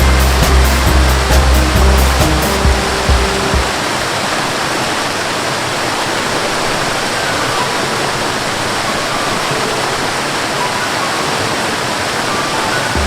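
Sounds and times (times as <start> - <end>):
deep rumble with low tones: 0.0 - 3.8
river water rushing: 0.0 - 13.0.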